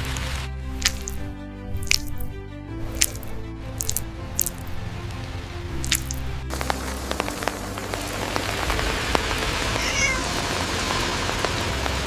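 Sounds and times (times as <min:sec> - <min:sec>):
water spraying hiss: 0:02.8 - 0:12.0
cat meowing: 0:09.7 - 0:10.4.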